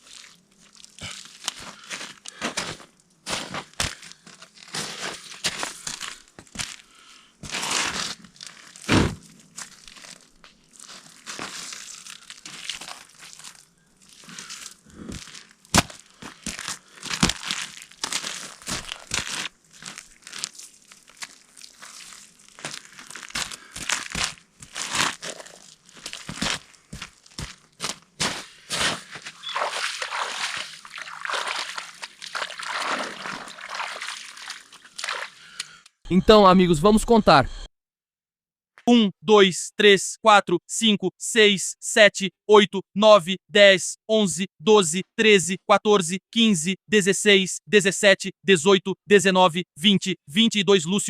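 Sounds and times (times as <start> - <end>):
crunching and crinkling: 0.0 - 35.7.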